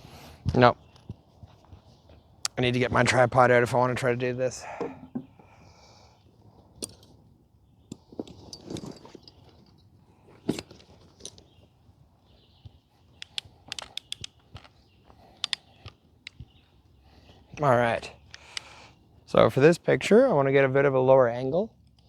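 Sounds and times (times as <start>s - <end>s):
tripod clicks and rattles: 13.1s - 16.6s.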